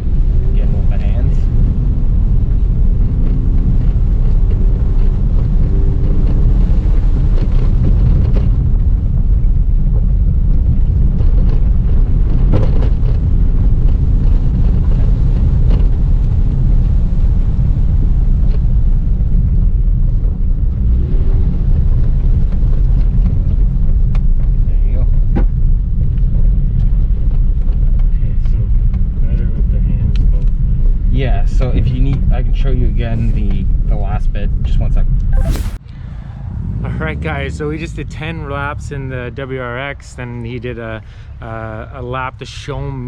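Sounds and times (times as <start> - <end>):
car engine: 0.0 - 15.4, 35.3 - 39.4
tyres rumbling on dirt: 35.4 - 41.1.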